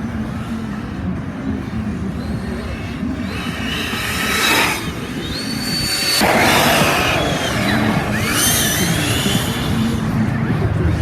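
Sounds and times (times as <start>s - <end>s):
tyre noise: 2.0s - 11.0s
electric motor whine: 2.1s - 10.5s.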